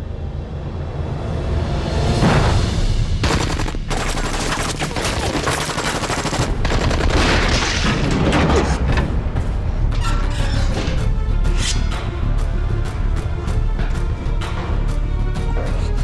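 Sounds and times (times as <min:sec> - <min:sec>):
rapid gunfire: 0:03.2 - 0:07.8.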